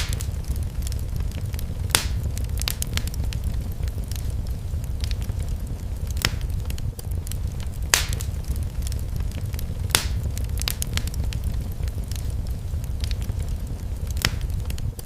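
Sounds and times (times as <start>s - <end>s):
fire pops: 0.0s - 15.0s
low rumble: 0.0s - 15.0s
wood fire crackling: 0.0s - 15.0s.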